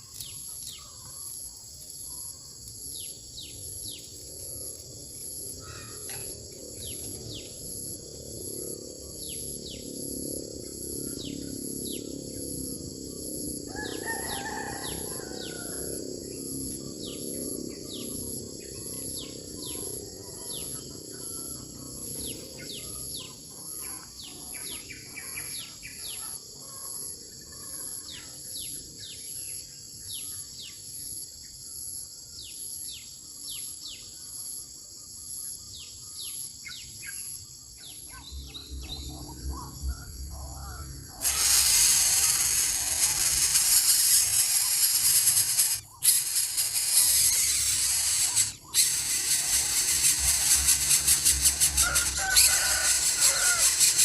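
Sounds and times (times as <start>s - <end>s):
insects buzzing: 0.0s - 54.0s
pulsing insect trill: 0.0s - 54.0s
loud even hiss: 41.1s - 54.0s.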